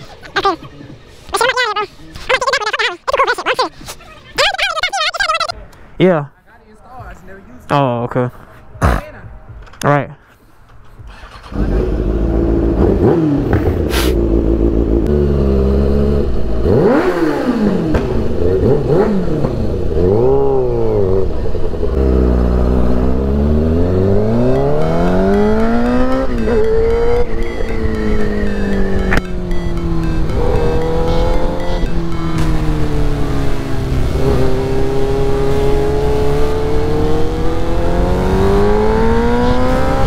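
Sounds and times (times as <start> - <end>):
motorcycle engine accelerating: 11.0 - 40.0.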